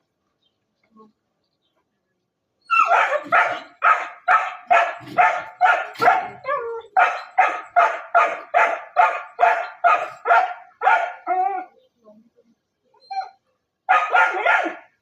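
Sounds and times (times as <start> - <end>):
dog barking: 2.8 - 11.4, 13.9 - 15.0.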